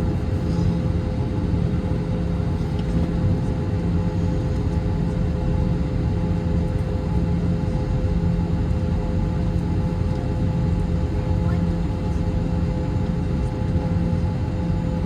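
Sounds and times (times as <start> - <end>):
constant hum: 0.0 - 15.0.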